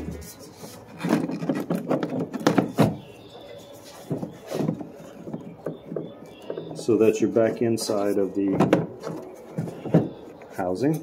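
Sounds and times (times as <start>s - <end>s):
plastic scraping: 0.0s - 10.5s
hard plastic knocks and clicks: 4.0s - 6.9s, 8.4s - 10.5s.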